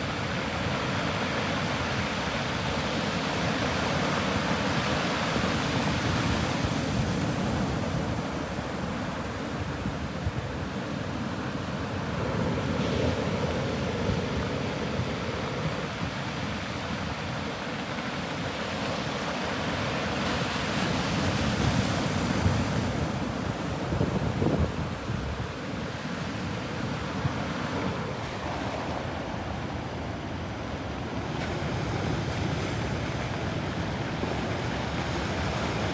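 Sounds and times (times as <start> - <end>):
wind rumble on microphone: 21.2 - 30.1.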